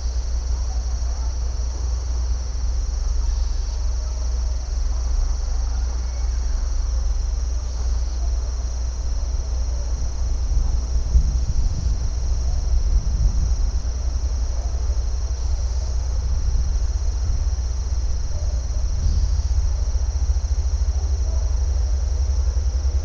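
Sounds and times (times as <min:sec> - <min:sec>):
high-pitched insect chorus: 0:00.0 - 0:23.0
low rumble: 0:08.8 - 0:23.0.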